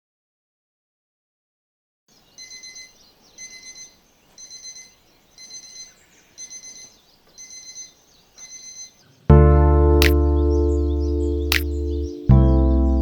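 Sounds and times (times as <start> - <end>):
rapid high-pitched alarm beeps: 2.4 - 9.0.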